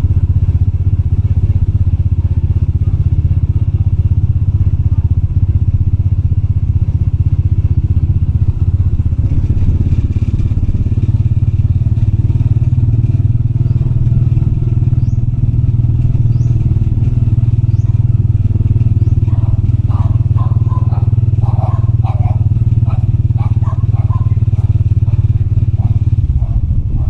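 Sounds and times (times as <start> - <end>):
motorbike engine running: 0.0 - 27.0.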